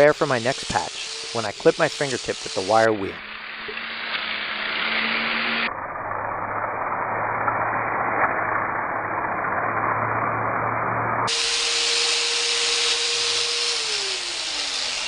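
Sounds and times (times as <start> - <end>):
wire wheel scrubbing metal: 0.0 - 5.7, 11.3 - 15.0
power tool whine: 0.0 - 15.0.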